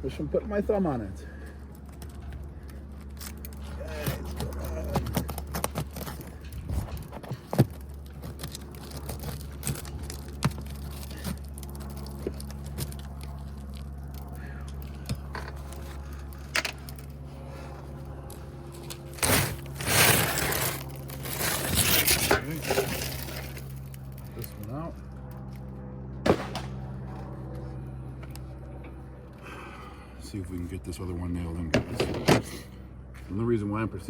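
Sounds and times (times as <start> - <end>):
steady low hum: 0.0 - 34.0
scraping rush: 19.2 - 23.5.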